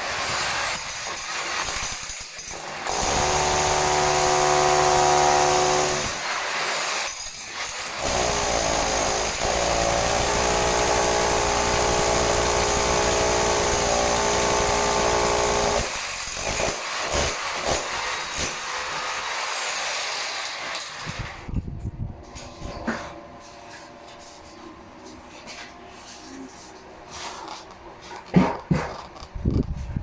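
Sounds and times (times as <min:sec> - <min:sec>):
power tool motor running: 0:02.9 - 0:06.8, 0:07.7 - 0:16.7.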